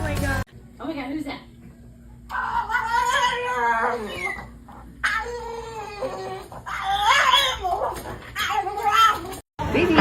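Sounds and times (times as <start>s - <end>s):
dog whining: 2.3s - 9.4s.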